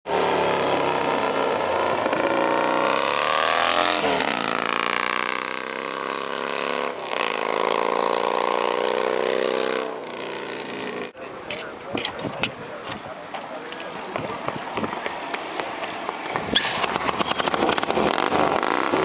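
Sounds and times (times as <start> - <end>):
motorcycle engine accelerating: 0.1 - 11.2, 15.0 - 19.0.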